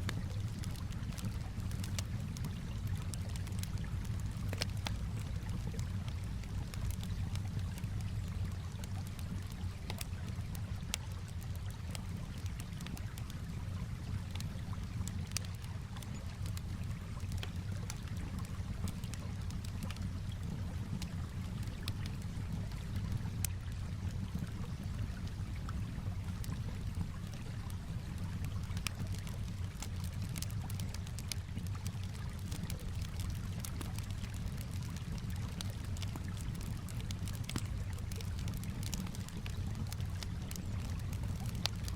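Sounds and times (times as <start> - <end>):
calm water lapping: 0.0 - 41.9
campfire crackling and popping: 0.0 - 41.9.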